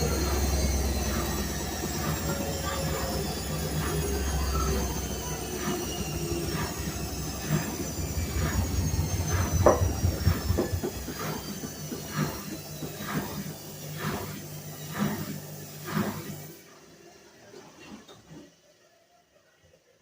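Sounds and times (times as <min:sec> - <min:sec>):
washing machine low rumble: 0:00.0 - 0:18.8
washing machine motor whine: 0:00.0 - 0:20.0
washing machine drum knocking: 0:08.2 - 0:13.0.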